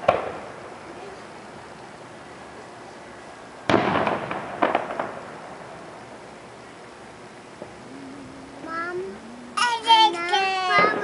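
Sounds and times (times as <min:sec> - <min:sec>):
fireworks bang: 0:00.0 - 0:00.6, 0:03.7 - 0:05.6
fireworks crackling pops: 0:00.0 - 0:02.6, 0:03.6 - 0:06.5, 0:07.5 - 0:07.8, 0:09.6 - 0:11.0.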